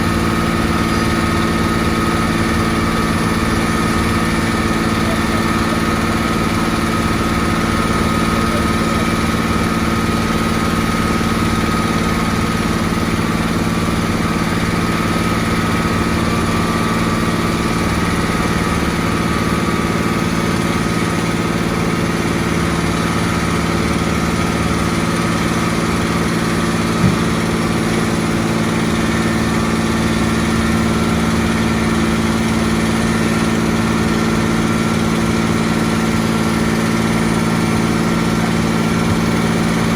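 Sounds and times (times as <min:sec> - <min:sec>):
construction machine engine running: 0:00.0 - 0:39.9
brief knock: 0:27.0 - 0:27.4.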